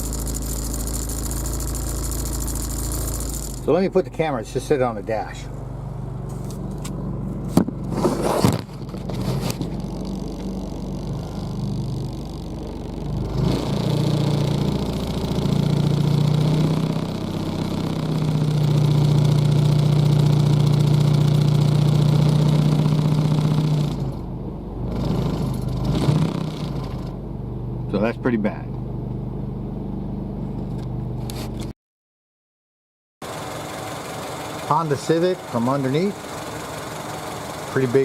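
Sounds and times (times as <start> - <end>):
car engine droning from cabin: 0.0 - 31.7, 33.2 - 38.0.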